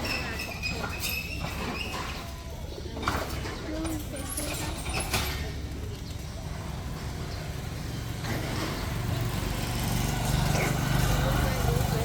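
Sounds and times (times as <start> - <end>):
vehicle engine humming: 3.8 - 12.0.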